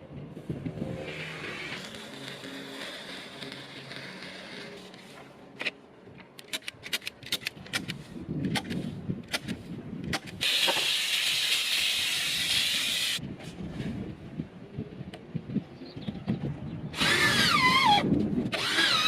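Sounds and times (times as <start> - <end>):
loud steady air hiss: 10.4 - 13.2.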